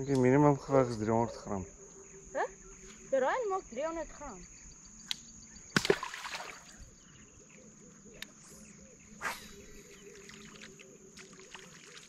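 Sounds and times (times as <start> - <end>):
high-pitched insect trill: 0.0 - 7.6.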